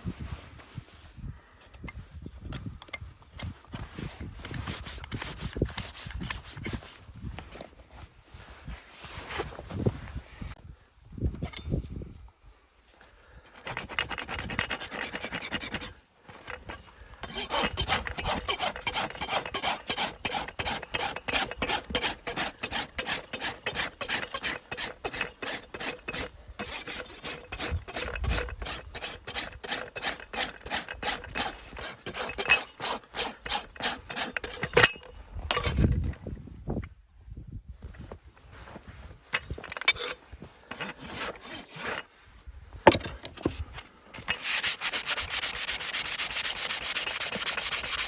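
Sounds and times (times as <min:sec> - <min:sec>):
rasp filing a hoof: 0:03.4 - 0:07.0, 0:13.4 - 0:36.0, 0:39.4 - 0:42.2, 0:42.9 - 0:48.0.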